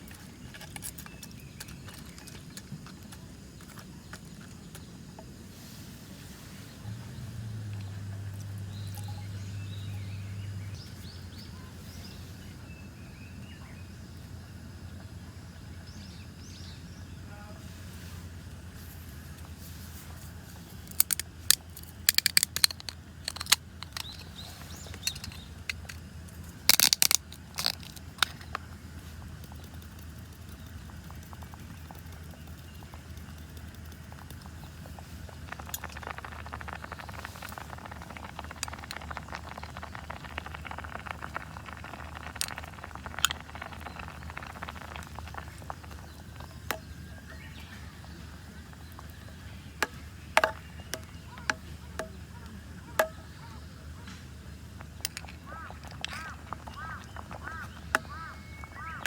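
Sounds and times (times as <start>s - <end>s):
sharp clicks and knocks: 20.9s - 24.2s
fine dense crackling: 34.8s - 46.5s.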